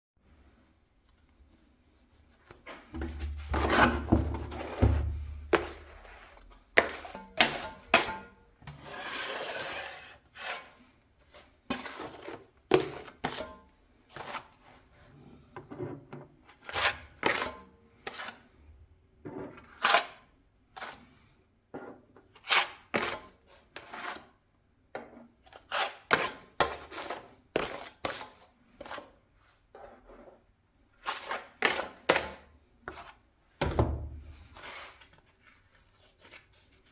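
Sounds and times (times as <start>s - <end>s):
hand tool scraping a surface: 2.8s - 10.8s, 25.5s - 29.1s, 34.4s - 35.2s.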